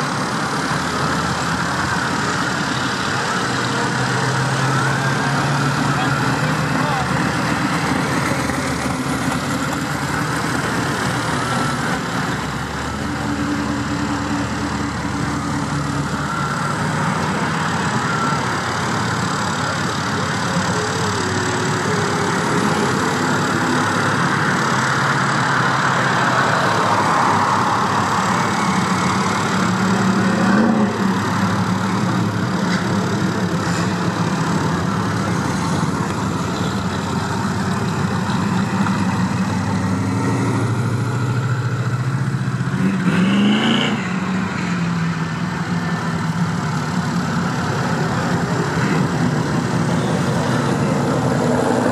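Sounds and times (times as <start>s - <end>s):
cars driving past: 21.6s - 51.9s.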